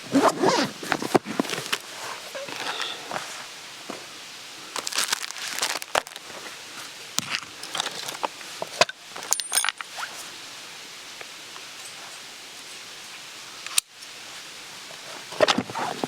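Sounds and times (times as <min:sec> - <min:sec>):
rustling and crinkling: 0:00.0 - 0:10.4, 0:14.9 - 0:16.0.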